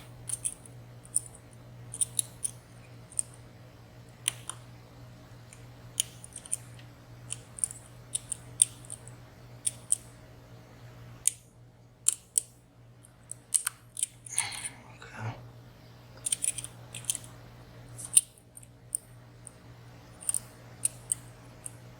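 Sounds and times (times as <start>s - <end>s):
faint steady hum: 0.0s - 21.9s
lock picks clicking in padlock: 0.3s - 1.3s, 20.2s - 21.8s.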